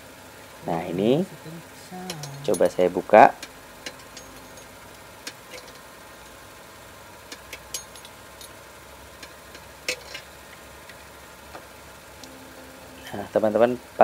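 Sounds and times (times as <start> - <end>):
car engine idling: 0.0 - 14.0
spanner clicking on metal: 3.4 - 5.8, 7.3 - 8.6.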